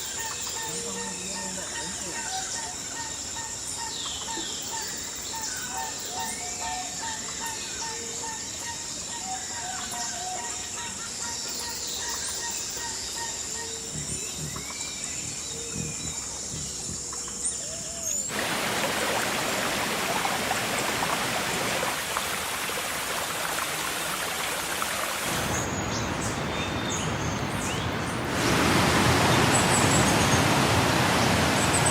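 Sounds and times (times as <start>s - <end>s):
steady loud hiss: 11.0s - 31.9s
birds chirping: 25.1s - 31.9s.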